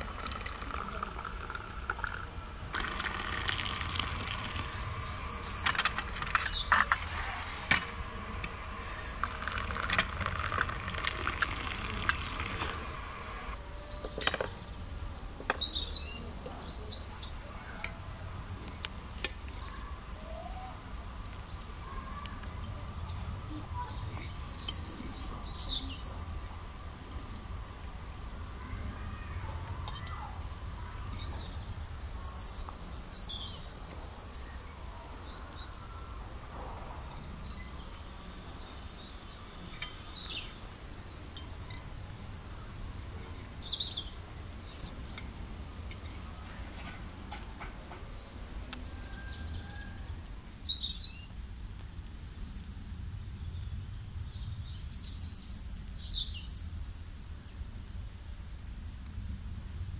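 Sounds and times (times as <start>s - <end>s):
small birds chirping: 0.0s - 59.3s
steady low rumble: 1.3s - 13.6s.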